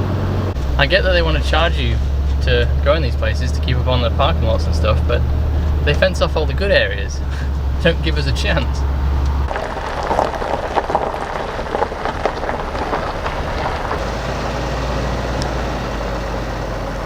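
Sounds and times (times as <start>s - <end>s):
road noise: 0.0s - 17.0s
vehicle running hum: 0.0s - 17.0s
crackling and ticking: 9.2s - 14.1s.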